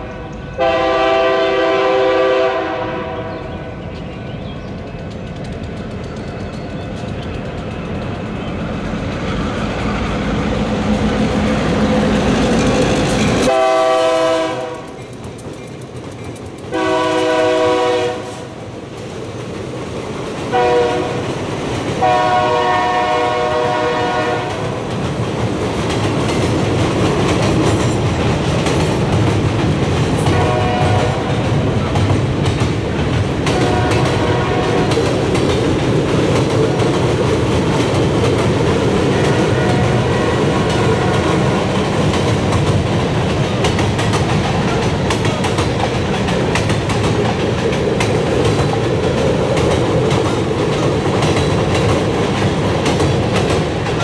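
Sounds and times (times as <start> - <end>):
freight train approaching: 0.0 - 54.0
locomotive air horn blasts: 0.6 - 3.4, 13.5 - 14.9, 16.7 - 18.5, 20.5 - 21.2, 22.0 - 24.6, 30.3 - 31.3, 33.6 - 34.9, 39.2 - 41.4
rhythmic wheel clatter on bridge: 4.8 - 9.9, 14.7 - 16.8, 31.2 - 54.0.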